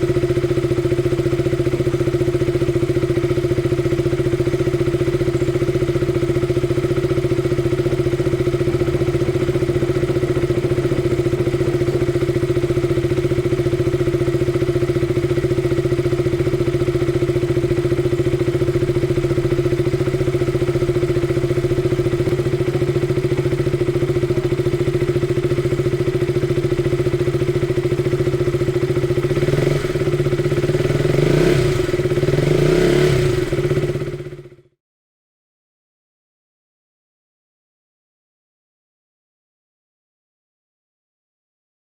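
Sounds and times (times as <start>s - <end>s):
motorcycle engine idling: 0.0s - 34.8s.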